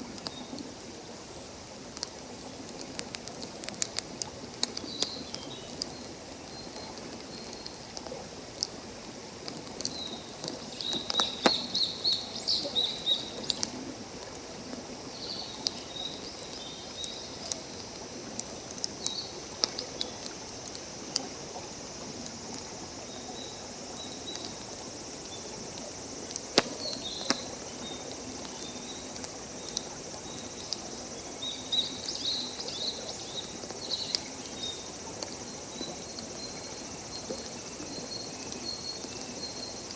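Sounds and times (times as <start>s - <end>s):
background hiss: 0.0s - 39.9s
campfire crackling and popping: 1.8s - 6.0s, 6.8s - 12.4s, 16.4s - 21.3s, 25.2s - 31.0s.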